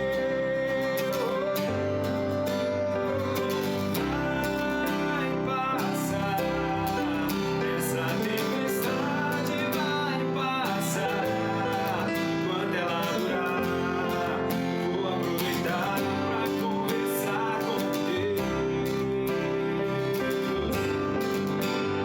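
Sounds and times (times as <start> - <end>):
strummed acoustic guitar music: 0.0 - 22.0.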